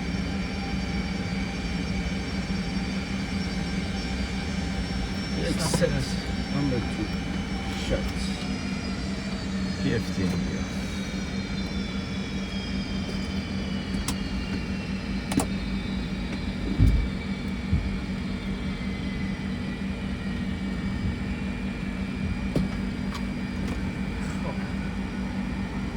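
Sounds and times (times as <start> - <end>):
cockpit hum: 0.0 - 25.9
jet engine spooling down: 0.0 - 25.9
low thump: 16.7 - 17.1.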